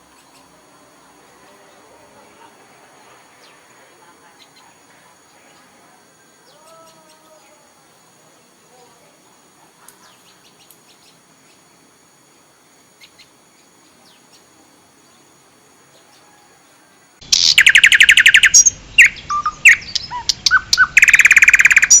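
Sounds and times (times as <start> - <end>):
bird chirps and trills: 0.0 - 0.6, 10.0 - 11.8, 12.9 - 16.2, 17.2 - 22.0.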